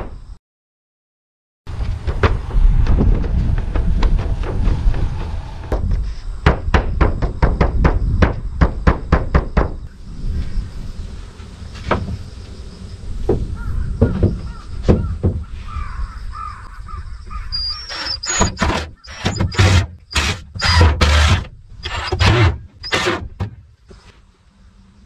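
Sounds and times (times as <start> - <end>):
knocks: 1.8 - 9.8, 14.0 - 15.5
bird cawing: 13.5 - 17.8.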